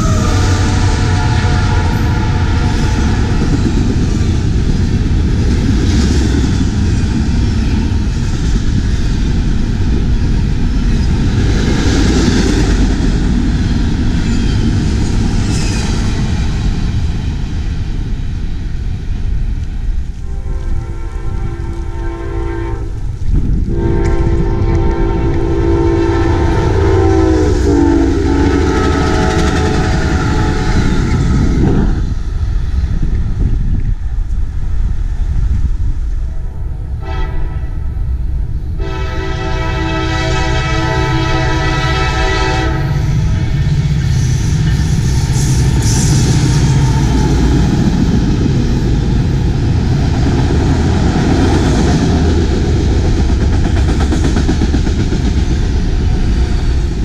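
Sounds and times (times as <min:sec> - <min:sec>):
train air horn blasts: 0:00.0 - 0:03.5, 0:20.2 - 0:23.1, 0:23.7 - 0:31.1, 0:37.0 - 0:38.0, 0:38.8 - 0:43.4
freight train wheels rumbling: 0:00.0 - 0:57.0.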